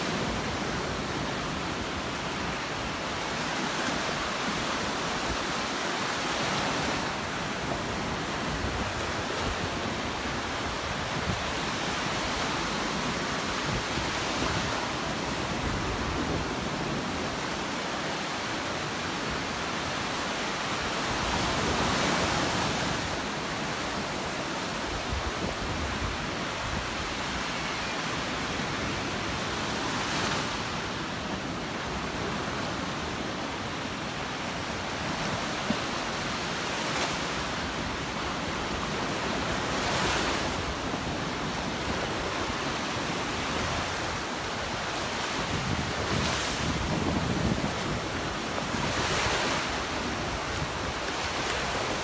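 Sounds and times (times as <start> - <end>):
waves breaking on beach: 0.0 - 52.0
wind buffeting microphone: 45.2 - 51.0.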